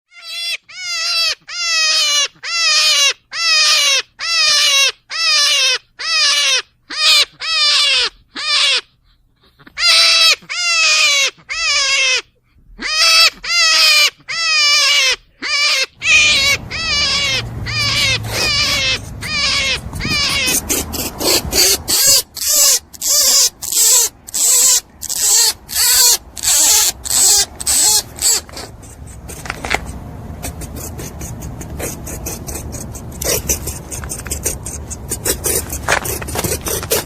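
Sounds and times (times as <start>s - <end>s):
rabbit squealing: 0.1s - 37.0s
low rumbling noise: 16.0s - 23.0s.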